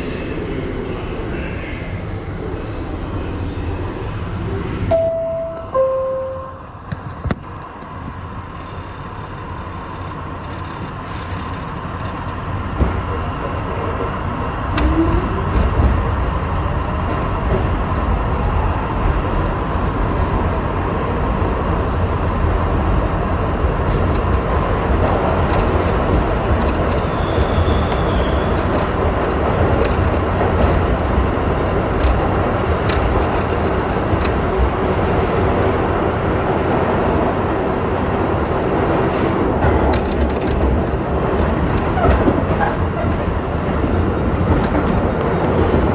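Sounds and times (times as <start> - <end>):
subway train pulling away: 0.0 - 45.9
sharp clicks and knocks: 23.8 - 34.6, 39.6 - 43.4.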